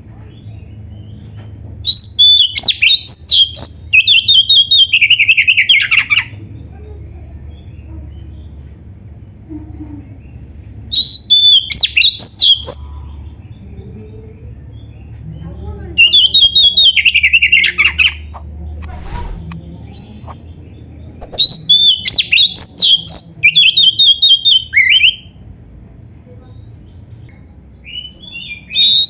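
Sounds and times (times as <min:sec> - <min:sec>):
bird whistling and trilling: 0:18.1 - 0:20.4, 0:21.2 - 0:22.6.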